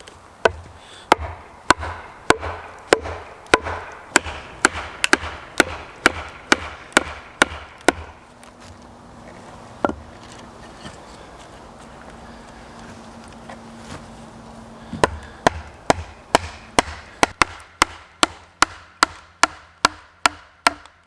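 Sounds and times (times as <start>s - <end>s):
blows splitting a log with a wedge: 0.0s - 8.8s, 14.8s - 21.0s.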